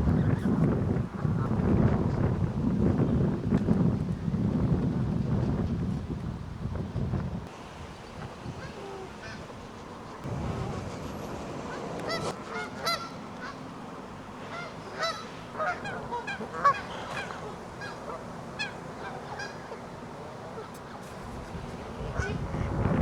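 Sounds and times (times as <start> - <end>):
geese honking: 7.9 - 22.8.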